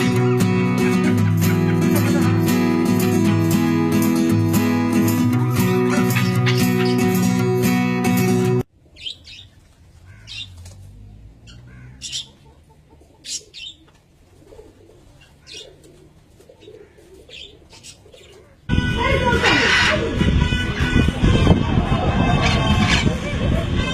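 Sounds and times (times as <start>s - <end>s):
strummed guitar music: 0.0s - 8.6s
parrot squawking: 5.5s - 7.4s, 19.2s - 20.3s.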